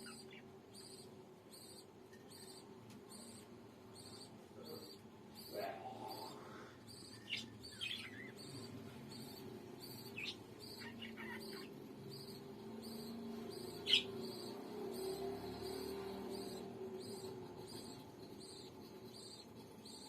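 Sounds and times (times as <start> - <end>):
parrot chirping: 0.0 - 20.0.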